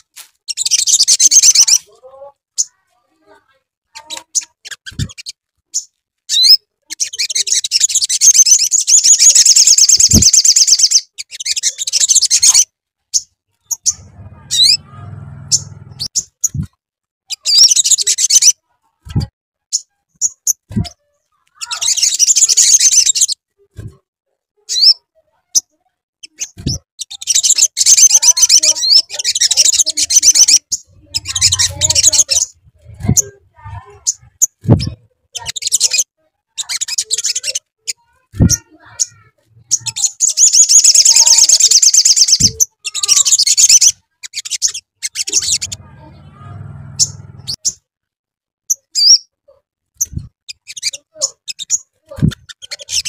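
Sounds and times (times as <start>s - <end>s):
bird chirping trills: 3.9s - 16.7s, 26.2s - 36.0s, 36.6s - 47.8s.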